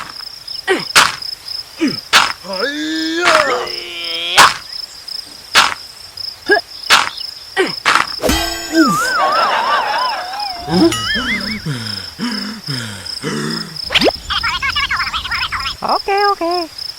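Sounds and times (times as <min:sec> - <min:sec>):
crickets chirping: 0:00.0 - 0:16.9
sharp knocks: 0:02.1 - 0:02.4.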